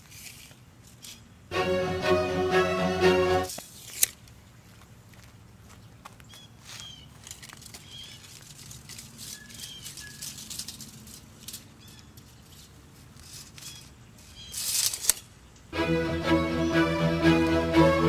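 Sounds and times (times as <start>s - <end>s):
small birds chirping: 5.7s - 7.2s, 7.8s - 8.4s, 9.2s - 10.4s, 11.6s - 12.8s, 13.6s - 14.7s.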